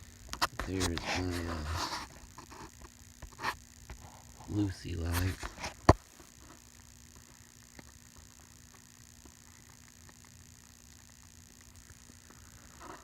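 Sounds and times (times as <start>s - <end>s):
background hiss: 0.0s - 13.0s
faint steady hum: 0.0s - 13.0s
faint ticks: 6.4s - 13.0s.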